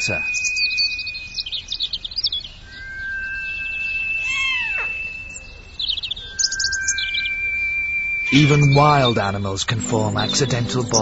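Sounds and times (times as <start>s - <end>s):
high chirping squeaks: 0.0s - 11.0s
steady background music tones: 9.8s - 11.0s.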